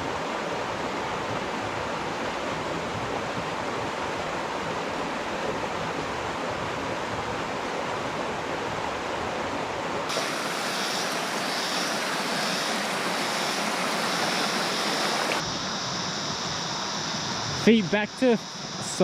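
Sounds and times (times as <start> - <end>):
stream water rushing: 0.0 - 19.0
high-pitched hiss: 10.1 - 19.0.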